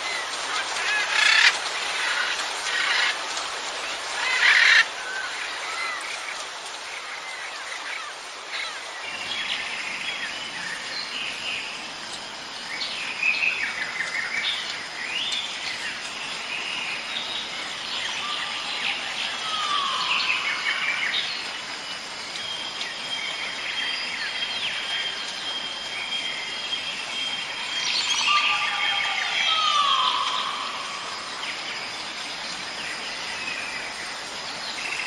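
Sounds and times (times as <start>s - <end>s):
background hiss: 0.0s - 35.0s
long falling bird call: 4.0s - 6.3s, 27.6s - 32.2s.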